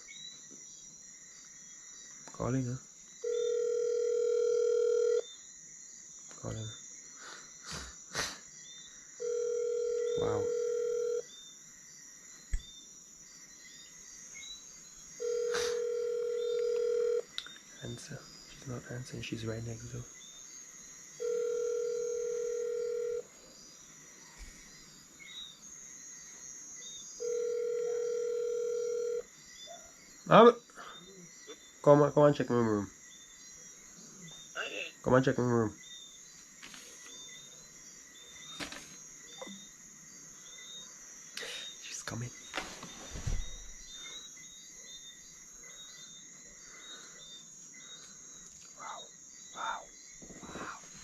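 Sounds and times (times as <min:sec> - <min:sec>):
night insects chirring: 0:00.0 - 0:51.0
telephone ringback tone: 0:03.2 - 0:05.2, 0:09.2 - 0:11.2, 0:15.2 - 0:17.3, 0:21.2 - 0:23.3, 0:27.2 - 0:29.3.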